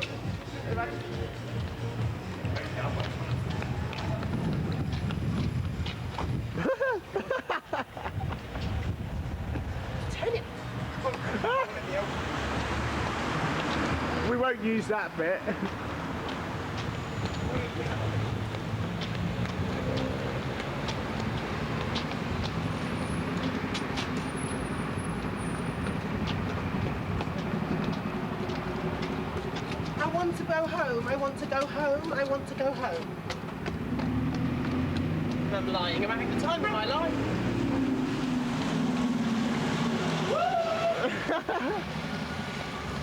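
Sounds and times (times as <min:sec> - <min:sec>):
vehicle engine humming: 0:00.0 - 0:06.7, 0:31.2 - 0:43.0
street traffic rumble: 0:00.0 - 0:43.0.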